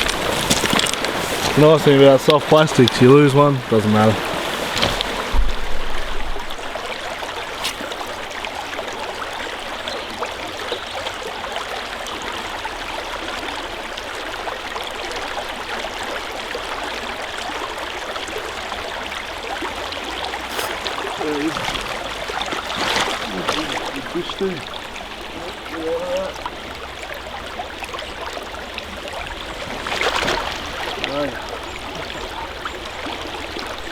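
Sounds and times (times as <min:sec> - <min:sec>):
creek water flowing: 0:00.0 - 0:33.9.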